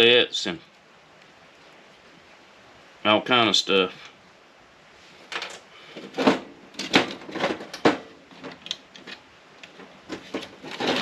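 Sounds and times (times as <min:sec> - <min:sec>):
metal parts clattering on workbench: 0:10.1 - 0:11.0.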